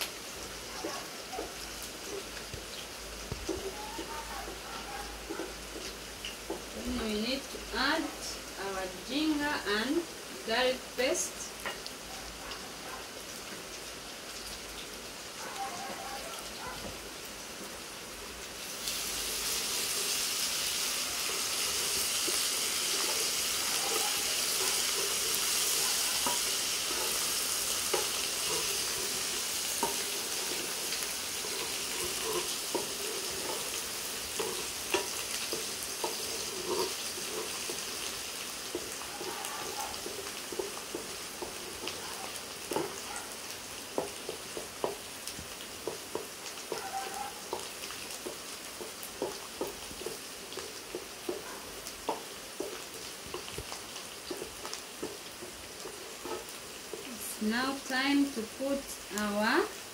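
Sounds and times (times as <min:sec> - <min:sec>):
onions sizzling in oil: 0:00.0 - 0:59.9
wooden spoon knocking pan: 0:03.3 - 0:04.6, 0:23.9 - 0:43.0, 0:43.9 - 0:45.0, 0:45.8 - 0:50.2, 0:52.1 - 0:57.1.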